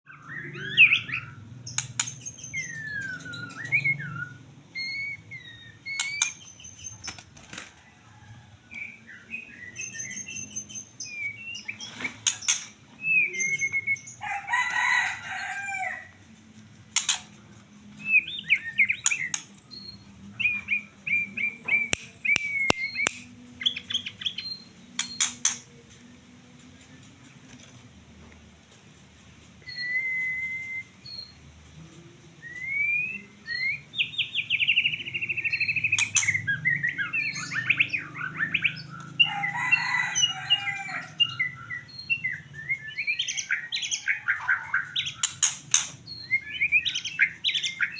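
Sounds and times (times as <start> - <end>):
bird singing whistled phrases: 18.1 - 24.6, 29.7 - 31.4, 32.4 - 38.8.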